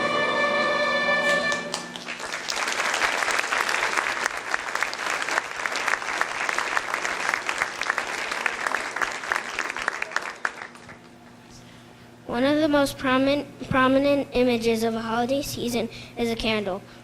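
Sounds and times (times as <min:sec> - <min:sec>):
audience applauding: 0:01.5 - 0:11.2.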